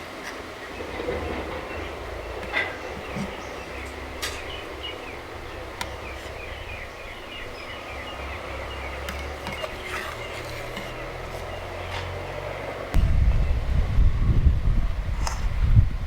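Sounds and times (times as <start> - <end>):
birds chirping: 0.0 - 13.8
steady low rumble: 12.9 - 16.0.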